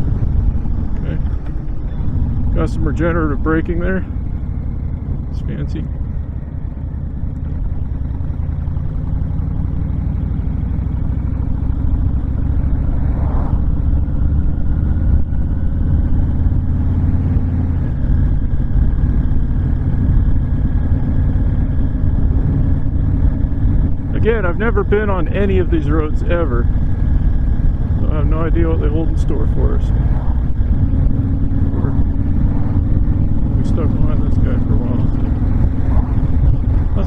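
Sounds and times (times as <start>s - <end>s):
wind rushing over microphone: 0.0s - 7.8s, 11.7s - 20.9s, 21.5s - 37.0s
motorcycle engine running: 0.0s - 37.0s.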